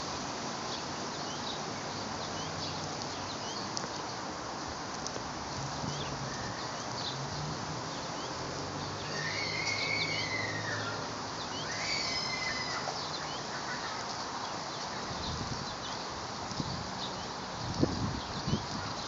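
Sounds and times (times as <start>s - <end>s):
background hiss: 0.0s - 19.0s
birds chirping: 0.6s - 19.0s
whistled bird calls: 9.0s - 14.0s.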